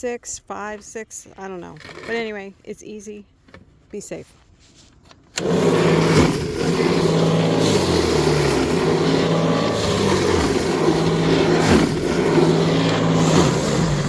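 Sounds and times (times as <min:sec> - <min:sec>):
electric snow thrower running: 0:05.4 - 0:14.0.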